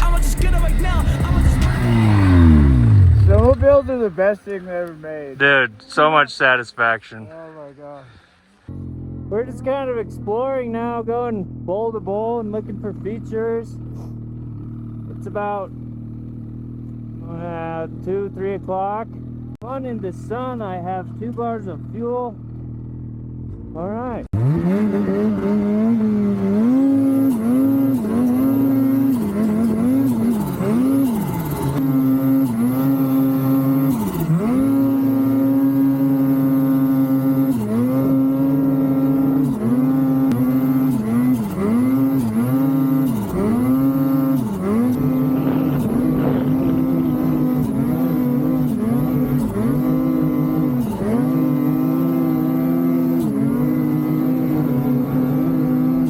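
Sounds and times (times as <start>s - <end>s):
snowmobile engine revving: 0.0s - 11.3s, 23.8s - 56.0s.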